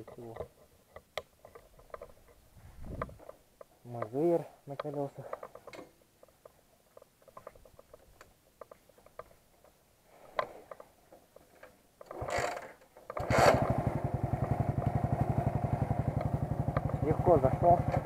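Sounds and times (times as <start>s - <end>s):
faint mechanical clicking: 0.0s - 13.2s
motorcycle engine starting and idling: 12.0s - 18.0s.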